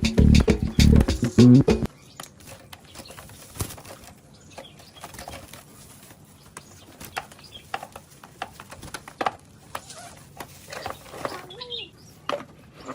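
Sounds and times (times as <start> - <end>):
background music: 0.0 - 1.9
caged birds hopping and fluttering: 1.9 - 12.9.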